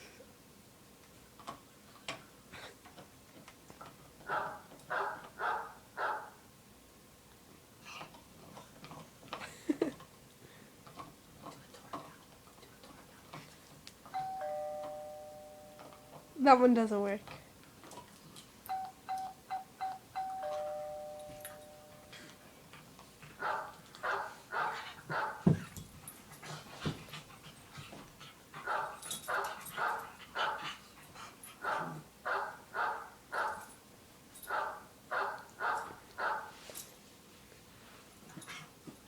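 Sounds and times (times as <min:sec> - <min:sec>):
dog barking: 0:04.3 - 0:06.4, 0:23.4 - 0:25.5, 0:28.6 - 0:30.6, 0:31.6 - 0:33.7, 0:34.5 - 0:36.5
two-note chime: 0:14.2 - 0:16.2, 0:18.7 - 0:22.1.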